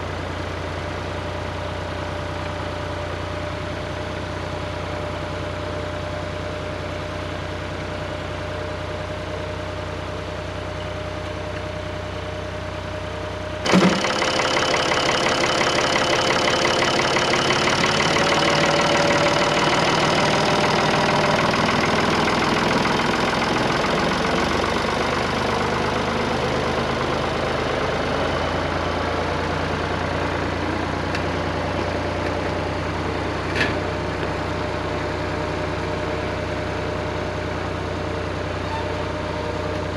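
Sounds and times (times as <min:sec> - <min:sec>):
tractor engine idling: 0:00.0 - 0:39.9
machinery rattling clatter: 0:13.6 - 0:25.9.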